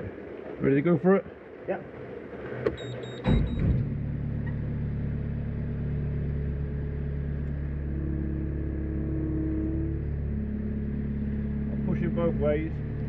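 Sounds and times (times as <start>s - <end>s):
engine idling: 2.0s - 13.0s
electronic warning beeps: 2.8s - 3.7s.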